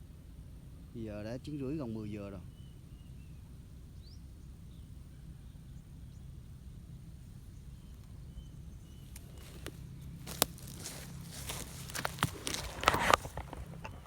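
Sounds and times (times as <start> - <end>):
low outdoor rumble: 0.0 - 14.0
faint high bird chirps: 1.8 - 9.9.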